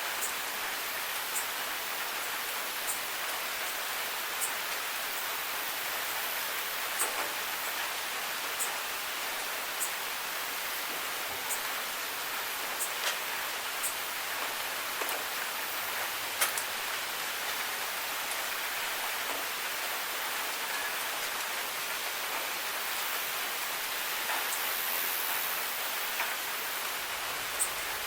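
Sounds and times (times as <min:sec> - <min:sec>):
steady rain falling: 0:00.0 - 0:28.0
raindrop ticks: 0:12.8 - 0:16.8, 0:26.2 - 0:26.4.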